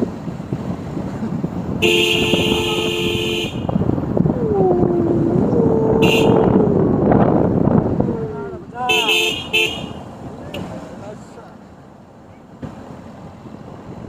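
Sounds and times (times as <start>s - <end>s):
engine and road noise: 0.0s - 14.0s
vehicle horn: 1.8s - 3.8s, 6.0s - 6.6s, 8.9s - 10.7s.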